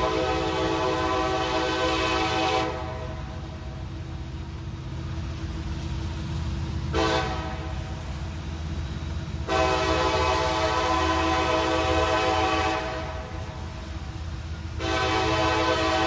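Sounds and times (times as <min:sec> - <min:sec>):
locomotive air horn blasts: 0:00.0 - 0:03.0, 0:06.9 - 0:07.8, 0:09.4 - 0:13.4, 0:14.8 - 0:16.0
train rumble: 0:00.0 - 0:16.0.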